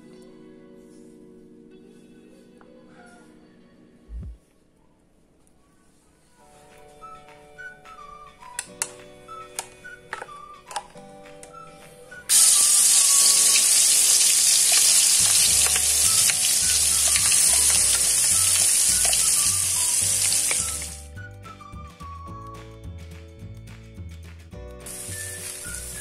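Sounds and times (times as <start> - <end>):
background music: 0.0 - 4.8, 6.2 - 26.0
paste sizzling in hot oil: 12.3 - 21.0, 24.9 - 26.0.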